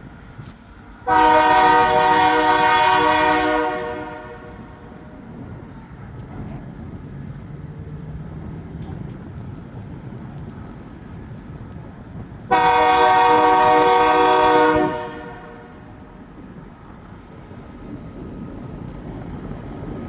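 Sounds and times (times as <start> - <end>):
diesel locomotive rumbling past: 0.0 - 20.0
train air horn blast: 1.0 - 4.8, 12.5 - 15.9.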